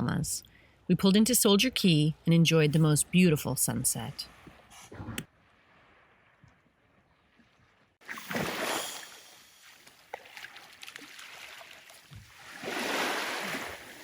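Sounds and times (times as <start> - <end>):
water splashing and sloshing: 4.3 - 14.0.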